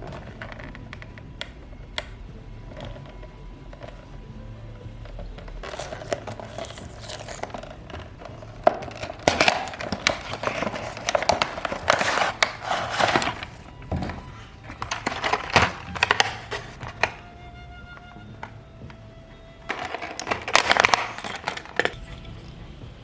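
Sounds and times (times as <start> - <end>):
packaging crinkling and rustling: 5.0 - 22.9.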